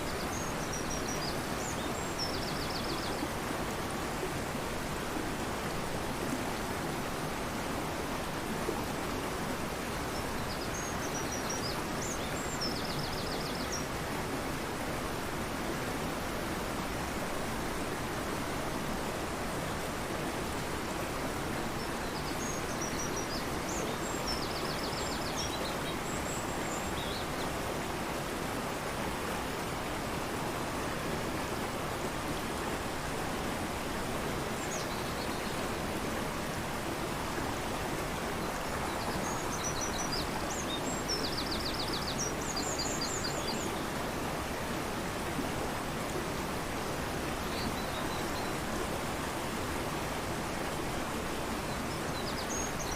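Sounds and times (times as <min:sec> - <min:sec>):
turbulent river rushing: 0:00.0 - 0:52.9
songbird chirps and trills: 0:33.8 - 0:44.2.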